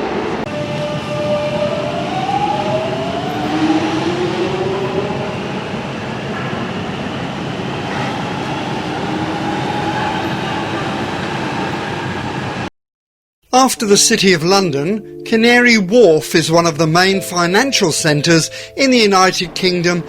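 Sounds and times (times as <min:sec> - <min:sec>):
train wheel and track noise: 0:00.0 - 0:12.7.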